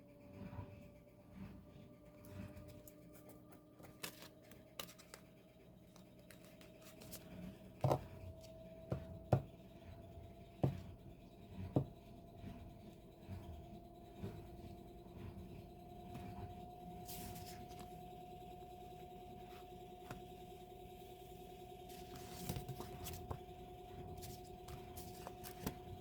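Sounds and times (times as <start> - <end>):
faint steady hum: 0.0 - 26.0
paper scratching and rubbing: 17.0 - 17.9, 21.9 - 26.0.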